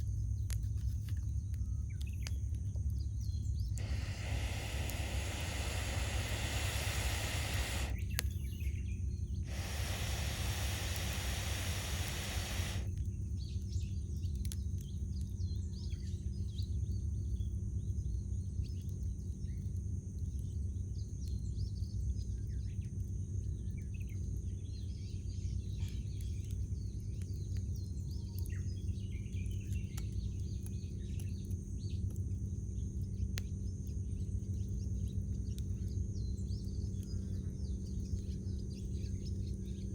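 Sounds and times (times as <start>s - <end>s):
campfire crackling: 2.5s - 8.5s, 9.4s - 13.1s
steady low rumble: 2.8s - 8.2s
birds chirping: 3.3s - 8.6s, 9.5s - 12.9s.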